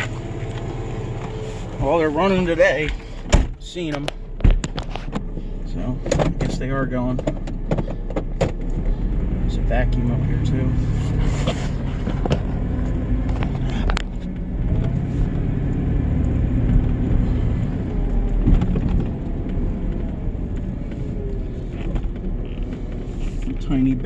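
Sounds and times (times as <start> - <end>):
truck engine rumbling: 0.0 - 24.0.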